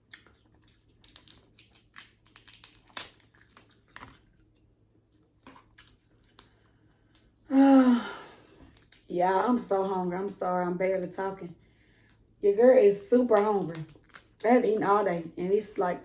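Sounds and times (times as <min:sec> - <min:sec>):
crab shell cracking: 0:00.0 - 0:07.4, 0:08.3 - 0:09.1, 0:13.1 - 0:14.5.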